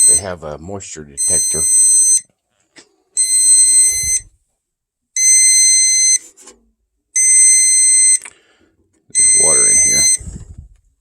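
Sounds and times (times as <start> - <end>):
water heater alarm beeping: 0.0 - 0.4, 1.2 - 2.3, 3.2 - 4.3, 5.2 - 6.2, 7.2 - 8.2, 9.1 - 10.3.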